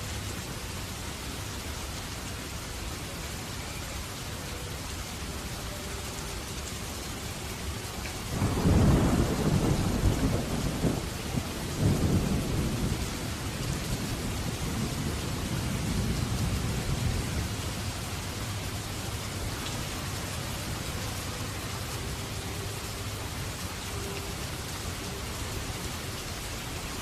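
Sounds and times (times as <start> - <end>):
steady rain falling: 0.0 - 27.0
thunder rumbling: 8.3 - 18.8.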